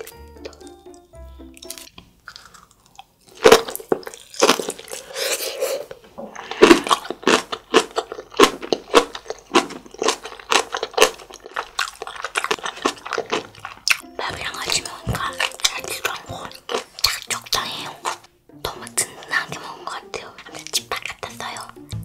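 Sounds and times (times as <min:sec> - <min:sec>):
crunchy chewing: 0:01.6 - 0:18.3.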